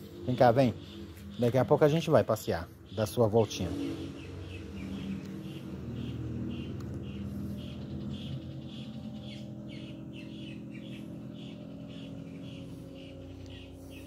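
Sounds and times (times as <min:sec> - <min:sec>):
steady low hum: 0:00.0 - 0:03.0, 0:03.7 - 0:14.0
bird chirping: 0:00.0 - 0:14.0.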